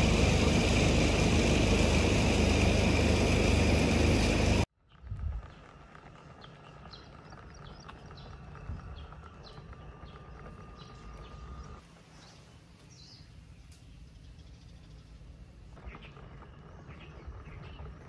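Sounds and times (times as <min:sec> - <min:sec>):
low outdoor rumble: 0:00.0 - 0:18.0
small birds chirping: 0:04.8 - 0:18.0.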